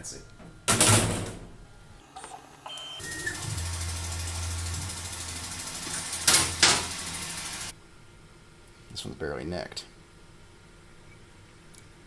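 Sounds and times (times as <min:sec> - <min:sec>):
milling spindle whirring: 0:03.0 - 0:07.7.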